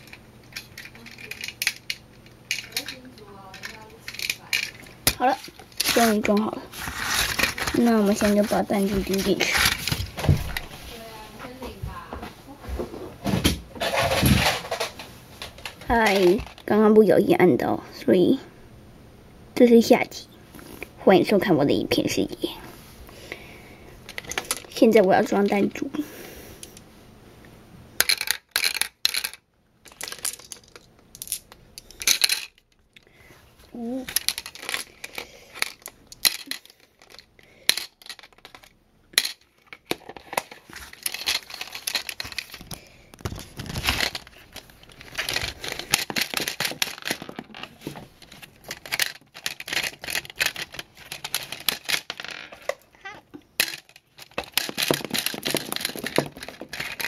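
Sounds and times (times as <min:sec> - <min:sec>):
handling rustles: 0:00.0 - 0:16.7, 0:33.6 - 0:57.0.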